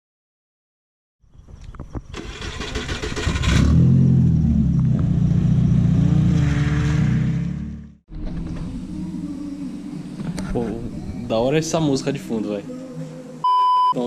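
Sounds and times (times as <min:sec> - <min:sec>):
car engine starting and revving: 0:02.1 - 0:09.1.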